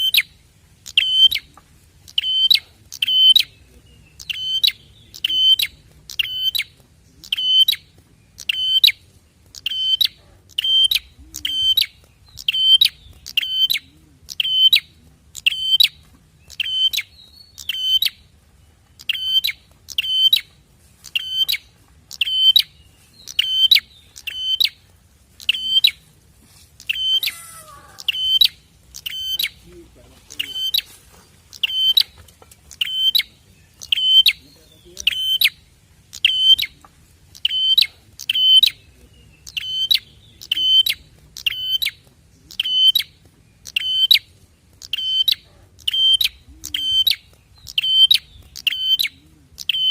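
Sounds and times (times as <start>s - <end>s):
bird sharp high chirps: 0.0s - 18.3s, 19.0s - 24.8s, 25.4s - 26.1s, 26.8s - 49.9s.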